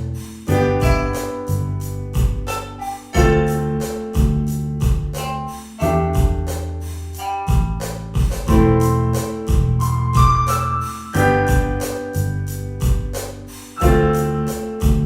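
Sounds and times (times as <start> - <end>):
bass line: 0.0 - 15.0
electric piano chords: 0.0 - 15.0
steady drum beat: 0.0 - 15.0.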